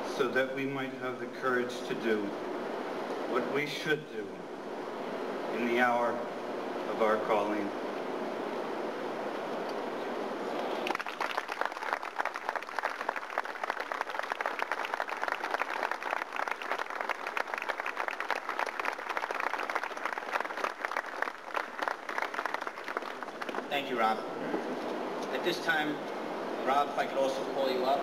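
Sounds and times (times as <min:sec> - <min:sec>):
crowd applauding: 0:10.6 - 0:24.0.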